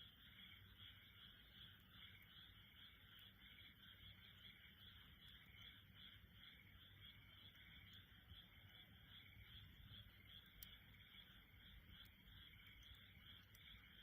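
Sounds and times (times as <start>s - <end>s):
frogs calling: 0.0s - 14.0s
wood fire crackling: 7.6s - 14.0s.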